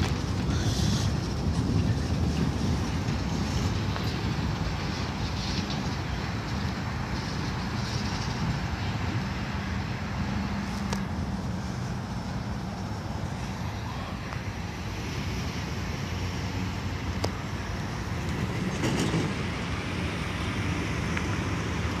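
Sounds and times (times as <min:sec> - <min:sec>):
freight train cars rolling: 0:00.0 - 0:22.0
road traffic passing: 0:00.0 - 0:22.0.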